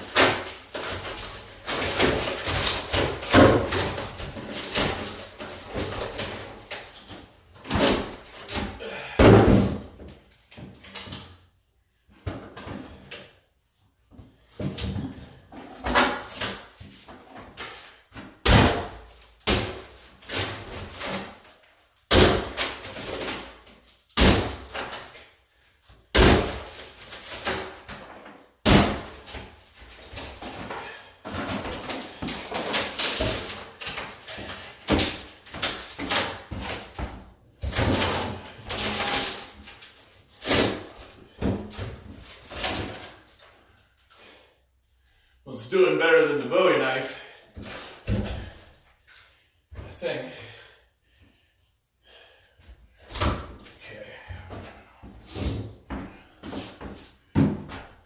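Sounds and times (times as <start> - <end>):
wood knocks and bangs: 0.0 - 6.8, 55.4 - 58.0.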